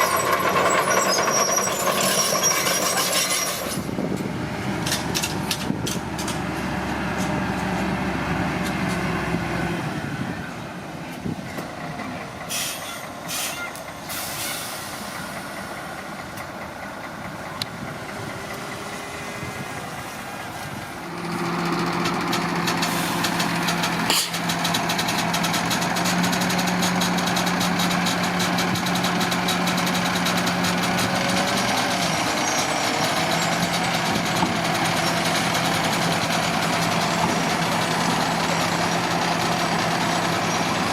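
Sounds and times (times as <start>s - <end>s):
bulldozer diesel engine revving: 0.0s - 10.5s, 13.9s - 40.9s
metal clanks: 22.0s - 29.8s.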